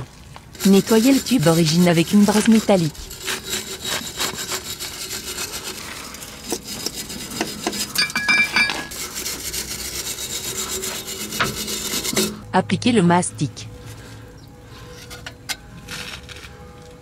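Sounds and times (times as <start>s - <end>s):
wire brush rasping on metal pipe: 0.6s - 12.4s, 14.8s - 16.4s.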